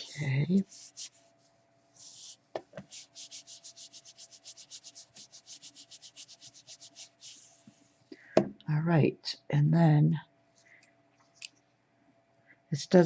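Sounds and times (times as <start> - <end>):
rubbing on paper: 0.0 - 8.0.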